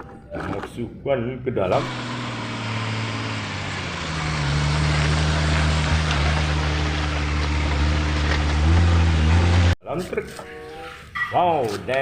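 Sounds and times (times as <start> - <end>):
engine humming: 1.7 - 9.8.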